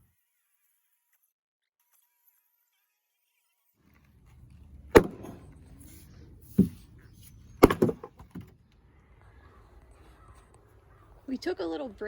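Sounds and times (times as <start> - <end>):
sharp knocks: 5.0 - 5.5, 6.6 - 6.8, 7.6 - 8.5.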